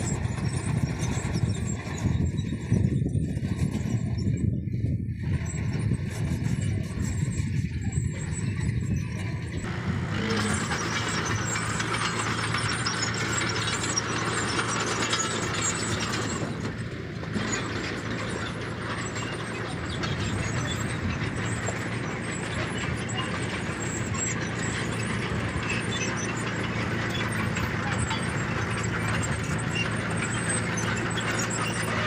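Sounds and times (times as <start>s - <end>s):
bulldozer diesel engine: 0.0s - 32.0s
steel tracks clattering: 9.7s - 32.0s.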